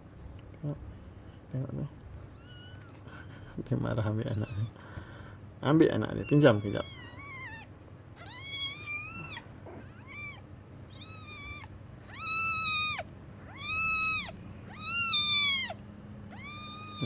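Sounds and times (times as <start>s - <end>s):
kitten mewing: 2.3s - 3.6s, 4.2s - 4.8s, 6.1s - 17.0s.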